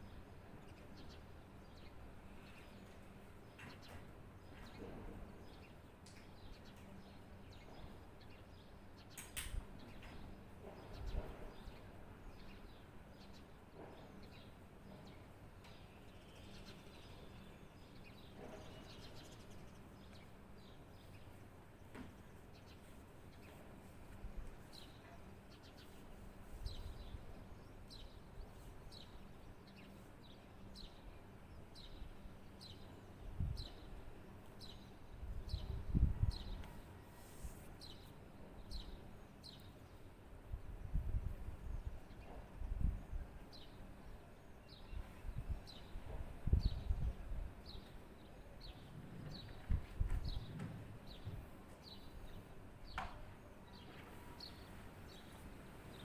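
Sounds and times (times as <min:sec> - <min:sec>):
sharp click: 0:09.1 - 0:09.6.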